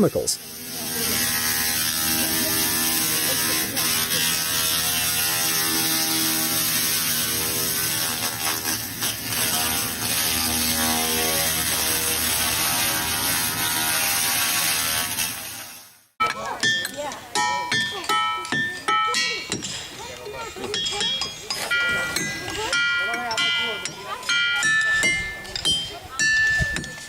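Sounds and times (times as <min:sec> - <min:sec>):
laser cleaner buzzing: 0:00.4 - 0:15.8.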